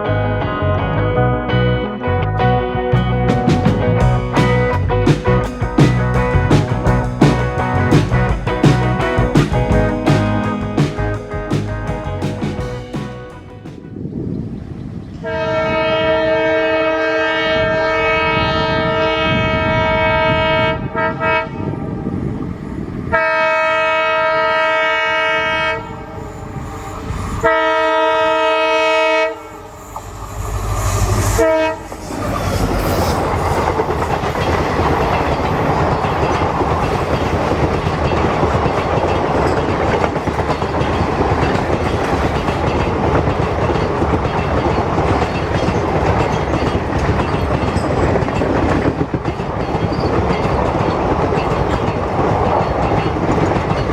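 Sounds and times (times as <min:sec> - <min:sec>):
diesel engine rumble: 0:00.0 - 0:13.6
train coaches clattering: 0:02.9 - 0:53.9
locomotive air horn: 0:15.2 - 0:21.7, 0:23.1 - 0:26.2, 0:27.4 - 0:33.2.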